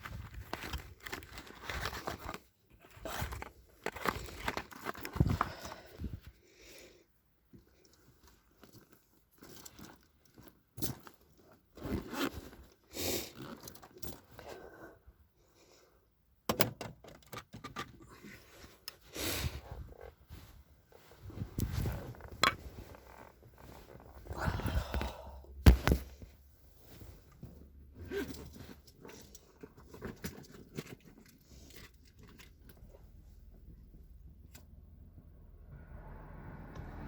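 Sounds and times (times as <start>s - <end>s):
rustling and crinkling: 0.0s - 6.4s, 7.4s - 14.8s, 17.5s - 34.7s.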